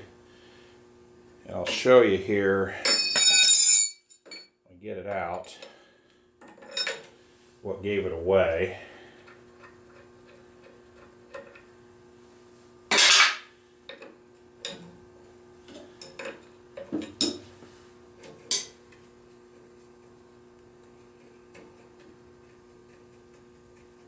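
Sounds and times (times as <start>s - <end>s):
metal tools clinking: 2.8s - 4.5s.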